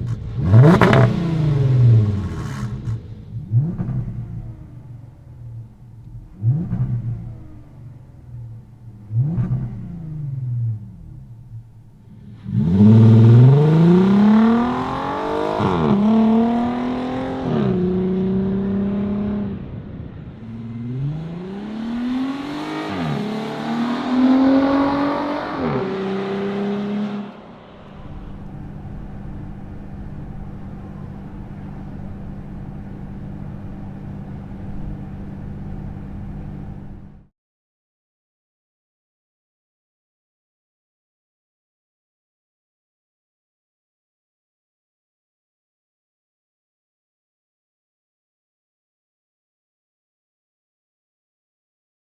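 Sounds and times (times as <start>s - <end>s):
low exhaust drone: 0.0s - 14.5s, 27.4s - 37.3s
car engine accelerating: 0.0s - 37.3s.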